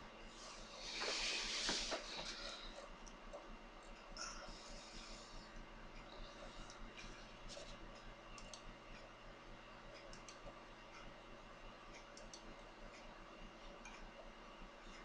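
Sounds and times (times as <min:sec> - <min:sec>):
low electrical hum and hiss: 0:00.0 - 0:15.0
faint scattered clicks: 0:05.5 - 0:09.1, 0:09.9 - 0:11.1, 0:11.9 - 0:15.0.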